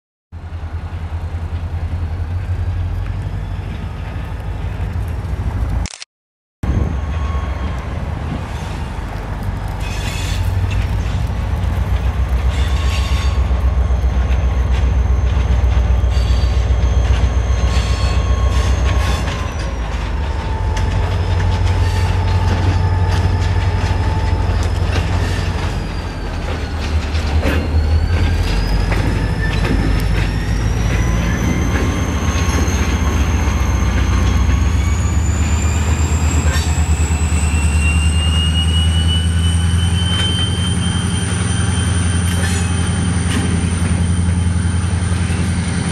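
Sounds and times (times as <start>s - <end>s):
diesel locomotive rumble: 0.4s - 5.9s, 6.6s - 45.9s
wheel squeal: 3.2s - 4.5s, 6.8s - 9.0s, 9.7s - 45.8s
wheels clicking over rails: 7.1s - 38.0s.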